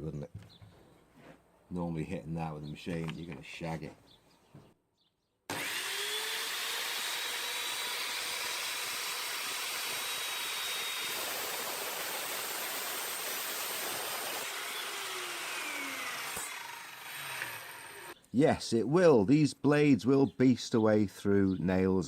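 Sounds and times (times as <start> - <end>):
mitre saw motor whine: 5.5 - 11.3, 14.2 - 18.2
saw cutting through wood: 5.5 - 18.2.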